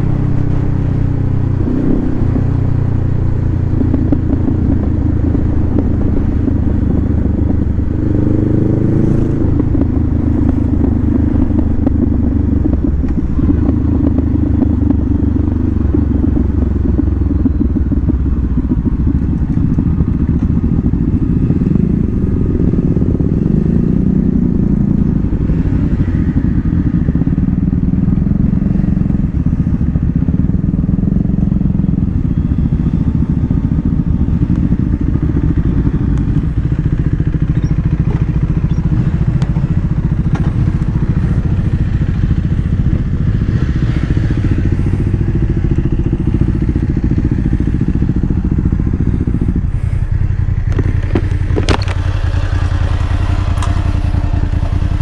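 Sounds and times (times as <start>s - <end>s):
motorcycle engine running and idling: 0.0s - 55.0s.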